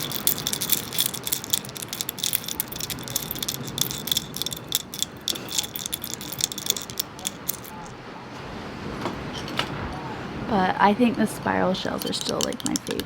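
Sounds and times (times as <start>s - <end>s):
seashells clicking and rattling: 0.0s - 8.0s, 11.8s - 13.0s.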